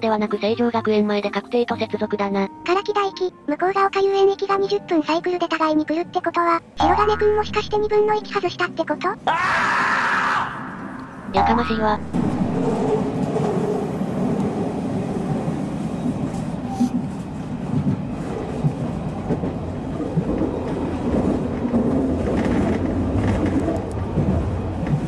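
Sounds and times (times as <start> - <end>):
train wheels rumbling on rail: 12.1 - 25.0.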